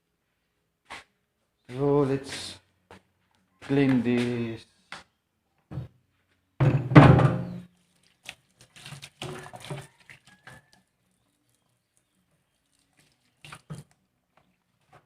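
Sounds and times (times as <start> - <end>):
heavy thunk: 6.6 - 7.5
kitchenware knocking and clinking: 6.6 - 7.6.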